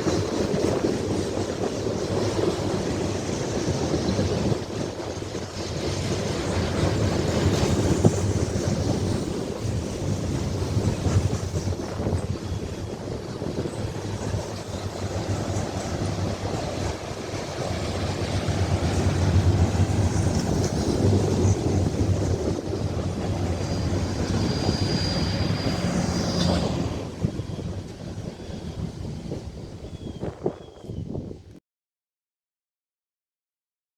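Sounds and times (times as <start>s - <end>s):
train rumbling past: 0.0s - 31.5s
high-pitched wheel squeal: 23.6s - 28.9s.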